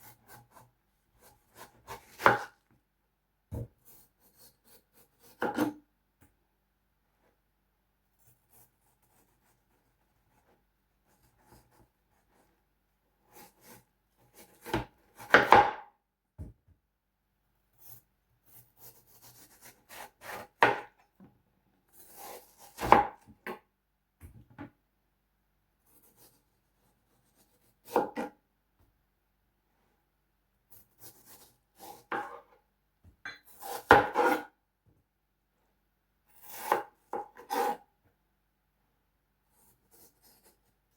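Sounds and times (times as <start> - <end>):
knife cutting watermelon: 0.0 - 2.6, 3.5 - 5.8, 17.8 - 21.0, 21.9 - 23.6, 27.1 - 28.4, 30.7 - 32.6, 33.3 - 34.6, 36.3 - 37.9, 39.6 - 40.7.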